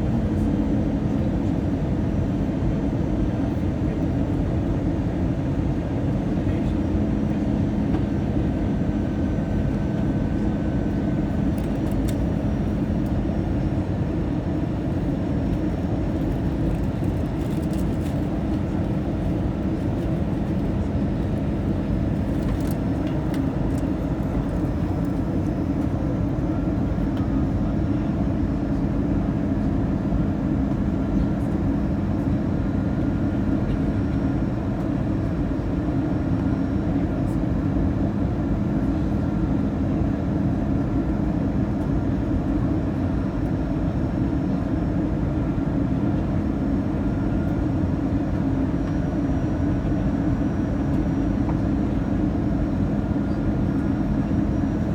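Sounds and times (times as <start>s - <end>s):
jet engine rumble: 0.0s - 54.9s.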